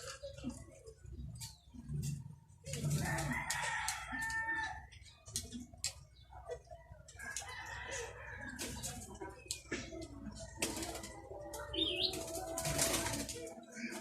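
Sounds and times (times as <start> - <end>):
rooster crowing: 3.0 - 4.9.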